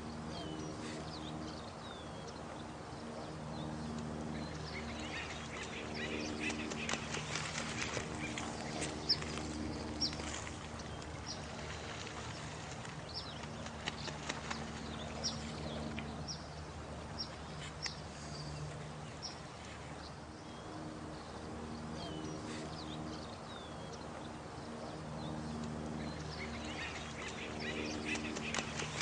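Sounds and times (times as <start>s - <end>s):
faint low humming tones: 0.0s - 29.0s
running water: 4.0s - 20.5s, 25.8s - 29.0s.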